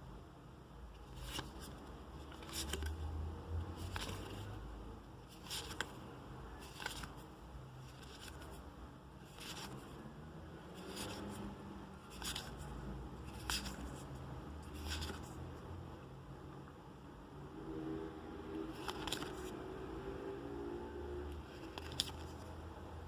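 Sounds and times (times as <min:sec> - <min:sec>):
card packaging rustling and snapping: 0:21.6 - 0:22.4.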